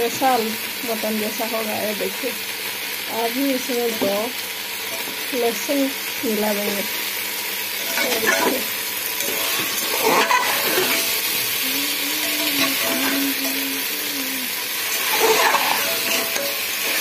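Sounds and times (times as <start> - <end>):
curry sizzling in pot: 0.0 - 17.0
metal spatula scraping pot: 7.8 - 11.6, 12.2 - 13.9, 14.8 - 17.0.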